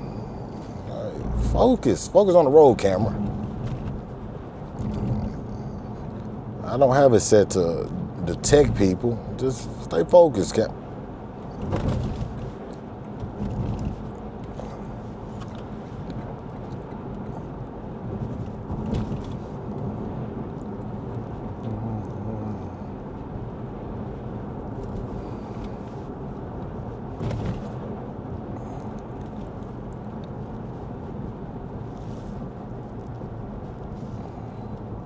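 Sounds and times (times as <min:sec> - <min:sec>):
tyre and engine hum: 0:00.0 - 0:35.0
brief louder sounds: 0:00.8 - 0:02.0.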